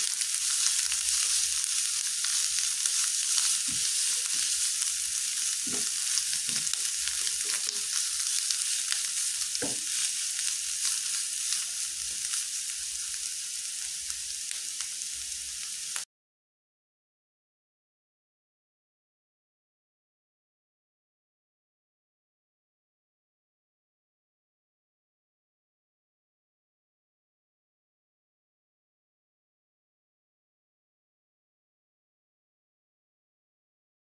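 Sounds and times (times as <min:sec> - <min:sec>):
mushrooms sizzling in oil: 0:00.0 - 0:16.1
spatula scraping pan: 0:00.4 - 0:12.4.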